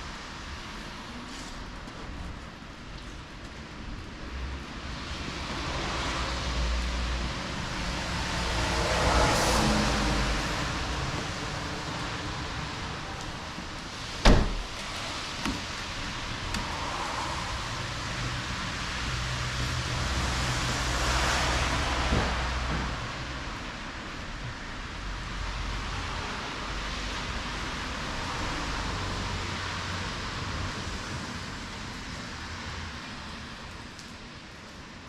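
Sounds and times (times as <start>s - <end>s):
car passing by: 4.8s - 14.2s, 14.8s - 24.0s.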